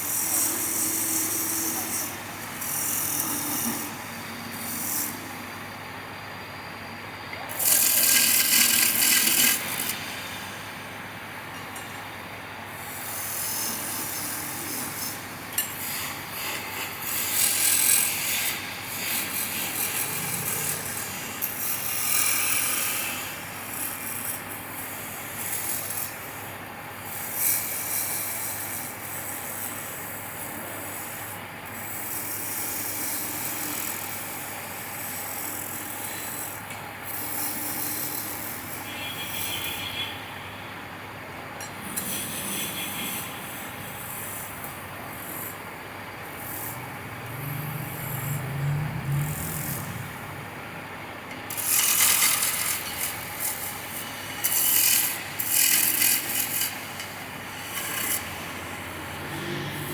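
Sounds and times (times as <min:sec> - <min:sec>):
lathe tool scraping wood: 0:07.5 - 0:10.5, 0:12.9 - 0:24.4, 0:51.5 - 0:59.9.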